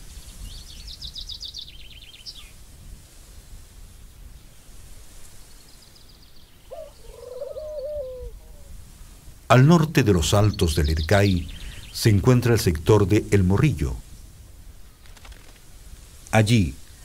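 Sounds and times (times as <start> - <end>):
low forest hum: 0.0 - 17.0
bird trilling: 6.7 - 8.7
low wavering bird call: 6.7 - 8.8.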